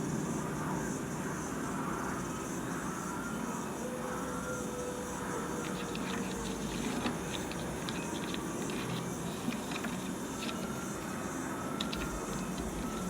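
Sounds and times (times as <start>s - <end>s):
paper rustling and crinkling: 5.6s - 11.2s, 11.8s - 13.0s.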